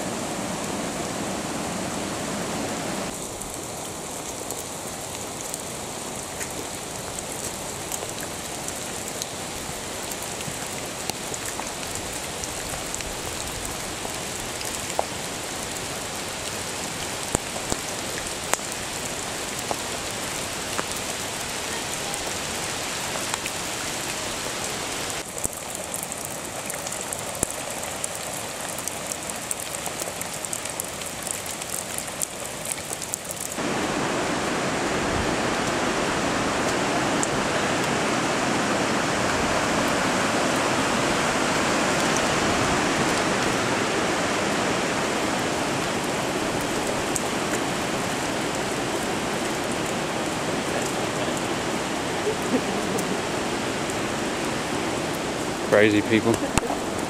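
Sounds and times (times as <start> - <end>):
heavy rain falling: 0.0 - 57.0
running water rushing: 0.0 - 57.0
raindrops ticking: 3.1 - 24.2, 25.1 - 33.6, 45.4 - 57.0.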